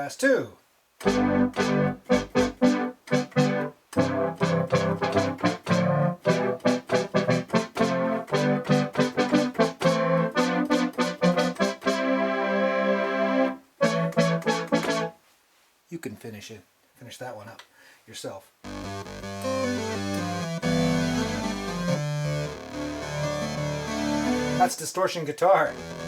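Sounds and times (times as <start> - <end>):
synthesizer brass stabs and chords: 1.0 - 15.1, 18.7 - 24.6, 25.7 - 26.0.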